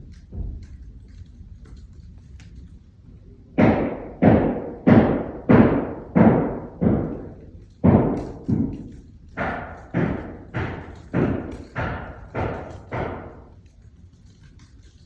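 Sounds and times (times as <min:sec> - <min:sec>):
heavy hammer blows: 0:03.6 - 0:13.5.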